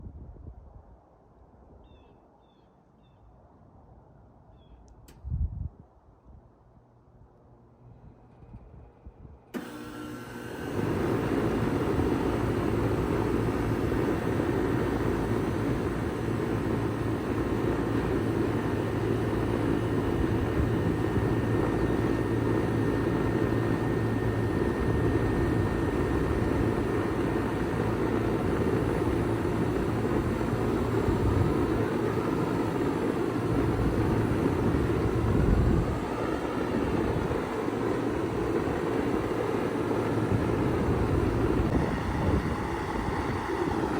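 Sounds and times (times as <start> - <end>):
heat pump fan rushing: 6.3 - 43.9
heat pump compressor humming: 9.3 - 43.9.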